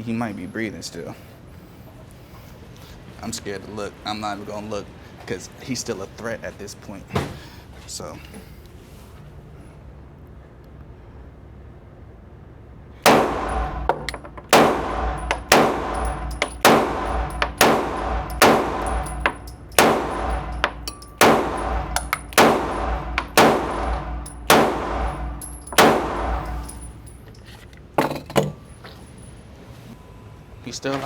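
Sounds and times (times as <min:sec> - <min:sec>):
gunshots with echo: 0:13.1 - 0:26.9.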